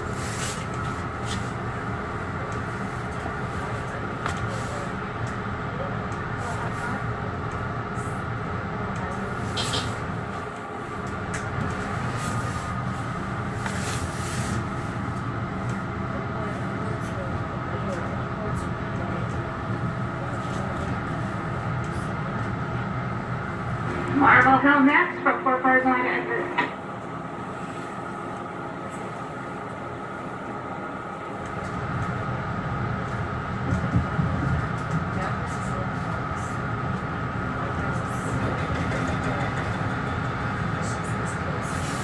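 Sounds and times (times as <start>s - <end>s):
train rumble from inside: 0.0s - 42.0s
faint steady whine: 23.1s - 31.3s.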